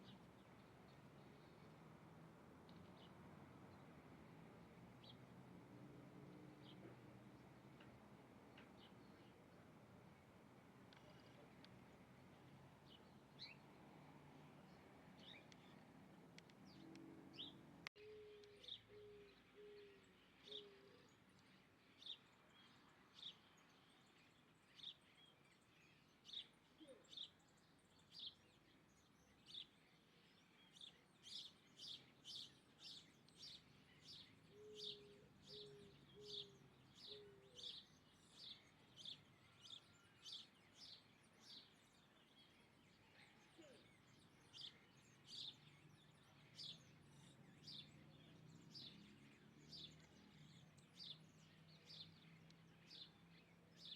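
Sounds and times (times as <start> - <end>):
bird chirping: 10.9 - 53.9.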